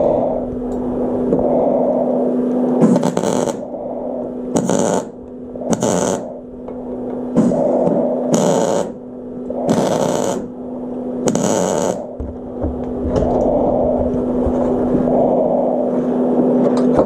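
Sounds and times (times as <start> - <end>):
steady electrical hum: 0.0 - 17.0
arc welding bursts: 2.8 - 3.7, 4.5 - 6.4, 8.3 - 9.0, 9.7 - 10.6, 11.2 - 12.2.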